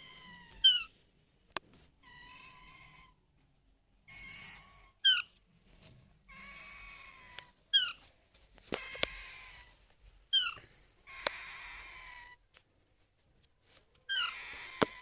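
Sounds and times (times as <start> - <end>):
parakeet squawking: 0.0 - 0.9, 4.1 - 5.4, 6.3 - 8.0, 8.8 - 9.7, 10.3 - 12.4, 14.1 - 15.0
raspy parakeet calls: 0.0 - 0.9, 4.1 - 5.4, 6.3 - 8.0, 8.8 - 12.4, 14.1 - 15.0.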